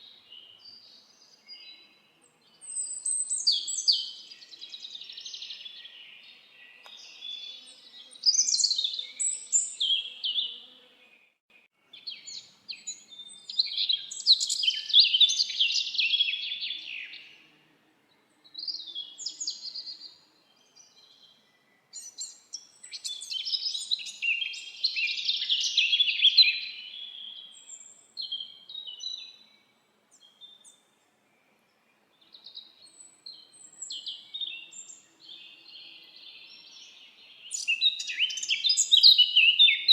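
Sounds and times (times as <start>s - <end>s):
songbirds twittering: 0.0s - 17.5s, 18.1s - 39.9s.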